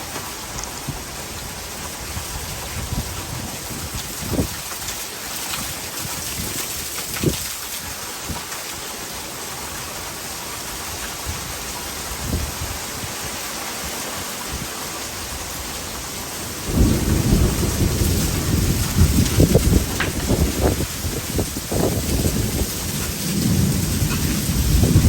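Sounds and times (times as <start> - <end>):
heavy rain falling: 0.0 - 25.0
thunder rumbling: 16.4 - 25.0.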